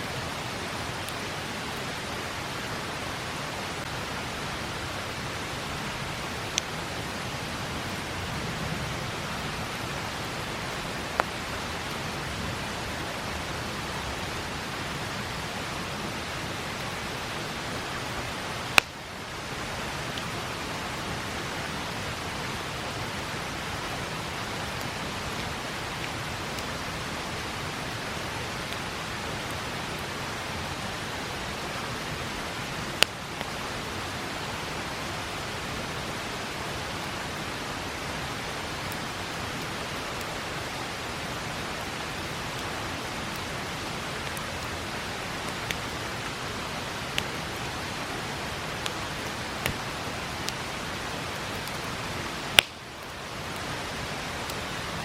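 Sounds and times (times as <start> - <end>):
river water rushing: 0.0 - 55.0
campfire popping: 18.6 - 19.0, 33.0 - 33.5, 51.4 - 53.5.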